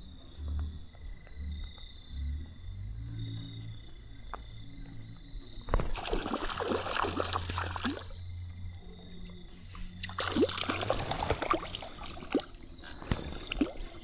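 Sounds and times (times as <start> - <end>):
fish splashing in water: 5.7 - 8.2, 10.0 - 14.0.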